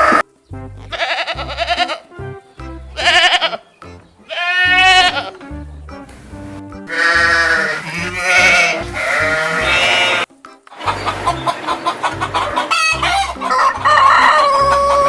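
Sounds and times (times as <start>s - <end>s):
background music with beat: 0.0s - 15.0s
livestock bleating: 0.8s - 2.2s, 2.9s - 3.7s, 4.3s - 5.5s, 6.9s - 10.3s.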